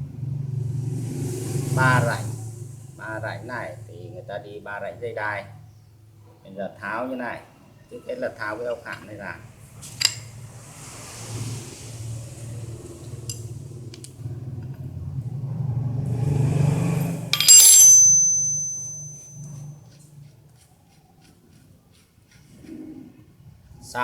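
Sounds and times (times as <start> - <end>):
low machine-like drone: 0.0 - 3.9
sharp metal clank: 17.3 - 19.6.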